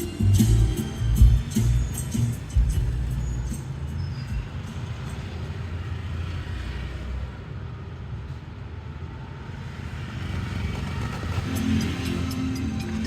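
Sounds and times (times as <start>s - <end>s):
car interior road rumble: 0.2s - 3.6s.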